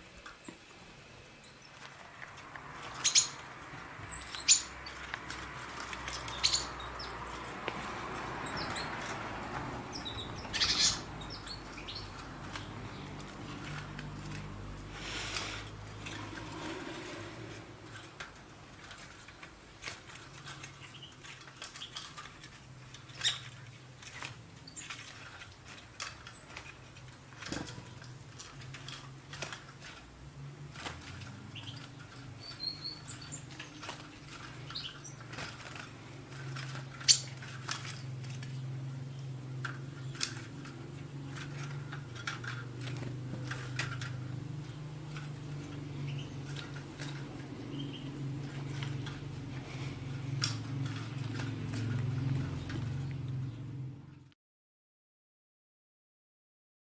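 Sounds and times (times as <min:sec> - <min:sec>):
bird rattling wire cage: 0:01.8 - 0:53.3
high bird chirps: 0:03.0 - 0:03.4, 0:04.1 - 0:05.0, 0:06.3 - 0:07.2, 0:09.9 - 0:12.2, 0:37.0 - 0:37.4.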